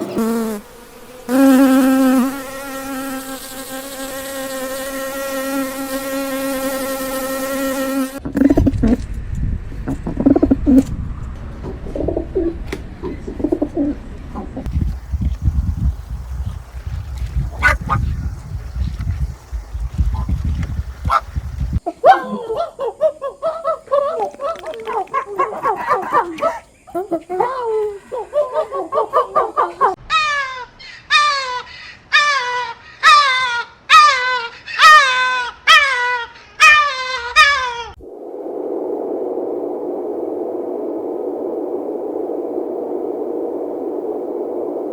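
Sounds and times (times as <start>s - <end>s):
steady low rumble: 8.2s - 21.8s, 38.0s - 44.9s
bird calling: 17.4s - 20.3s
animal calling: 17.5s - 18.2s.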